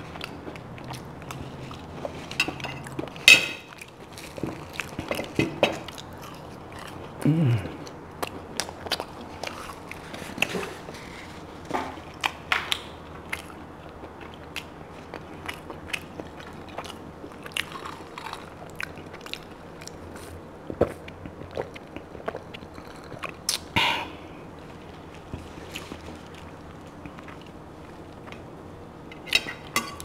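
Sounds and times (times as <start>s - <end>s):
person chewing with mouth clicks: 12.2s - 23.8s.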